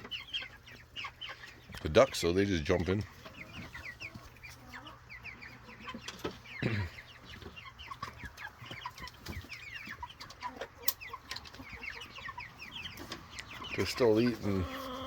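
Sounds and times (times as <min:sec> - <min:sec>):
chicks cheeping: 0:00.0 - 0:15.0.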